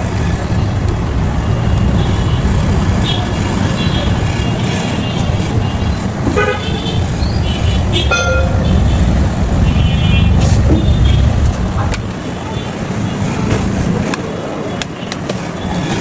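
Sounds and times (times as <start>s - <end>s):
road traffic rumble: 0.0s - 16.0s
vehicle horn toot: 3.8s - 11.9s.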